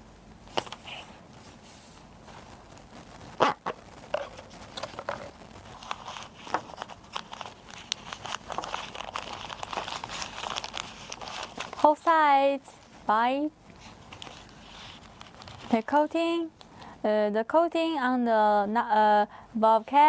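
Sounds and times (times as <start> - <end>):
plastic bag rustling: 0.4 - 13.1, 13.7 - 15.9.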